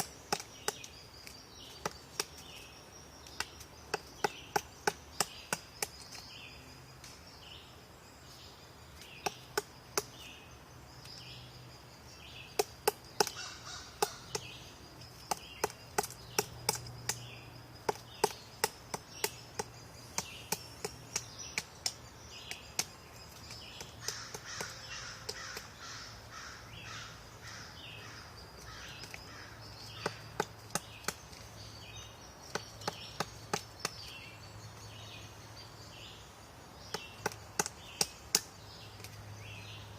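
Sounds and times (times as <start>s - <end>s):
woodpecker pecking wood: 0.0s - 6.4s, 9.0s - 10.3s, 12.4s - 26.5s, 28.6s - 31.6s, 32.3s - 34.2s, 36.8s - 39.2s.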